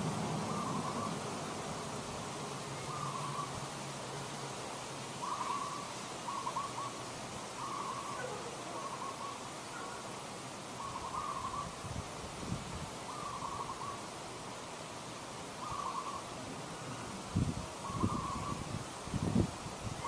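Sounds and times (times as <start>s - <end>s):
background hiss: 0.0s - 20.0s
animal trilled calls: 17.8s - 18.7s.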